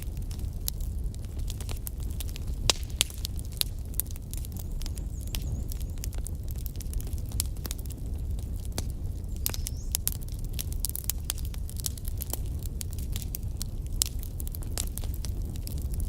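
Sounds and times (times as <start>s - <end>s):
burning logs crackling: 0.0s - 16.0s
fire rumbling: 0.0s - 16.0s.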